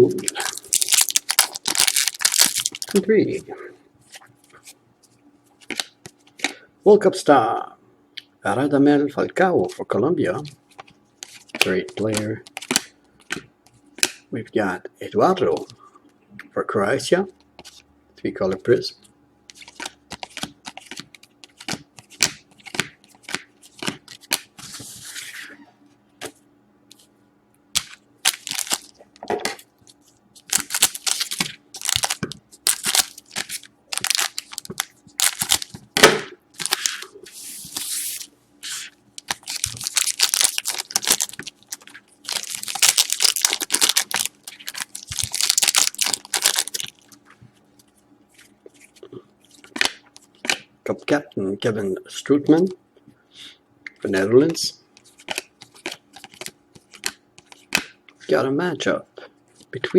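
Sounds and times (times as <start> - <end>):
wrappers tearing and crinkling: 0.2 - 3.0, 28.2 - 29.0, 30.4 - 35.8, 36.6 - 47.2
cards and packaging clicking: 0.3 - 3.0, 27.8 - 29.0, 30.5 - 35.8, 39.2 - 47.2, 55.0 - 57.9.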